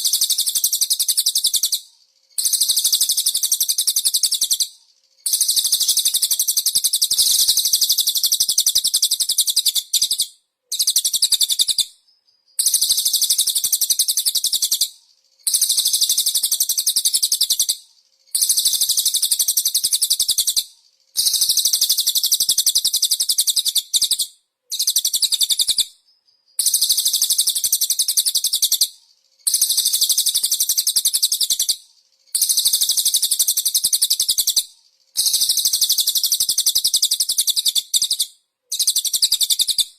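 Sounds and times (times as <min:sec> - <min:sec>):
songbird chattering trill: 0:00.0 - 0:17.8, 0:18.4 - 0:28.9, 0:32.4 - 0:39.9.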